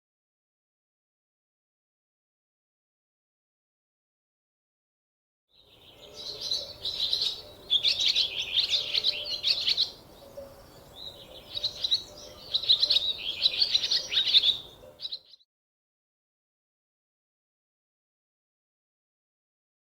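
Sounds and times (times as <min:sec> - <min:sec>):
squirrel chirping calls: 0:05.9 - 0:15.4.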